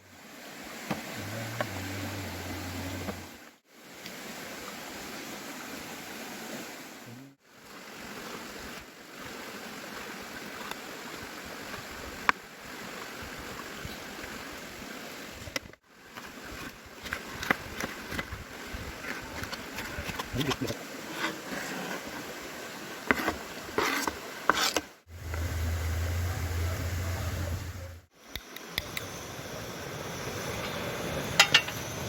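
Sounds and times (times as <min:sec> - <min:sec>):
stream of running water: 0:00.0 - 0:32.0.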